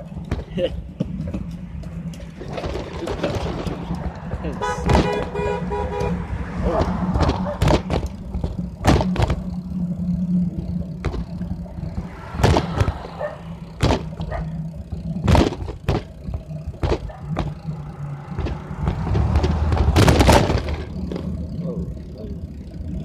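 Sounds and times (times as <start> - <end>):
bicycle knocks and rattles: 0.0 - 22.1
steady low hum: 5.2 - 23.0.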